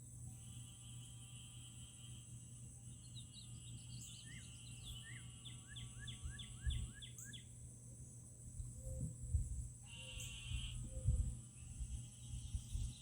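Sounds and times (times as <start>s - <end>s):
songbird whistling: 3.9s - 7.5s.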